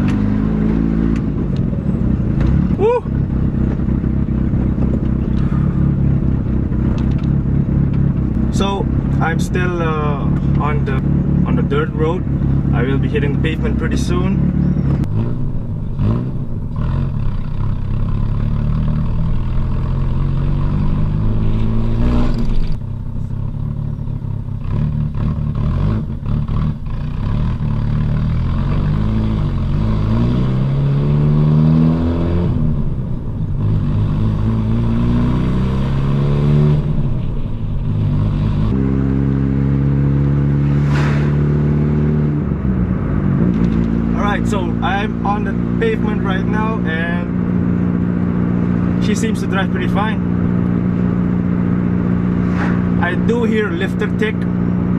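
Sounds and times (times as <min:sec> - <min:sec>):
car engine accelerating through gears: 0:00.0 - 0:54.9.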